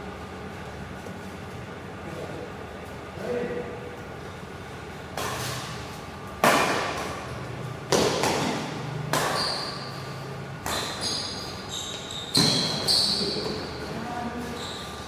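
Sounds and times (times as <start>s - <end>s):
racket hitting shuttlecock: 6.4s - 7.2s, 7.9s - 9.7s
shoe squeaks: 9.2s - 15.0s.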